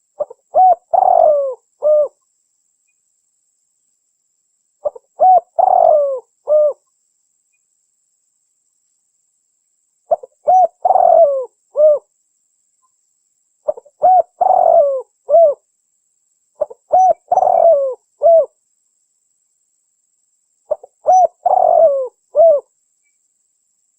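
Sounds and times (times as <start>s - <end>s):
dove cooing: 0.2s - 2.2s, 4.8s - 6.8s, 10.1s - 12.1s, 13.7s - 15.6s, 16.6s - 18.5s, 20.7s - 22.7s.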